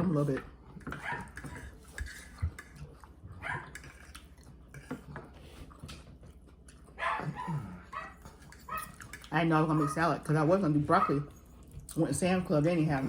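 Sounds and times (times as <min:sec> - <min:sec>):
dog whining: 0:07.0 - 0:09.0.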